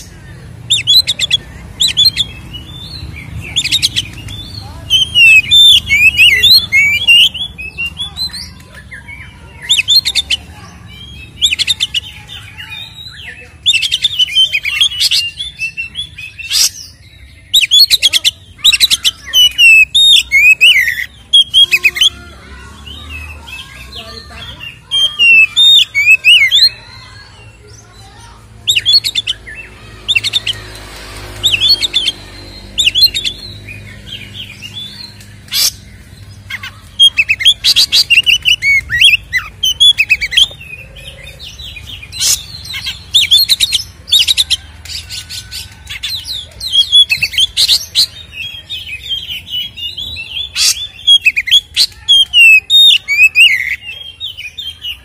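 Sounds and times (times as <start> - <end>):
bird singing whistles and chirps: 0.7 - 10.3, 11.0 - 22.1, 31.4 - 44.5, 45.2 - 55.0.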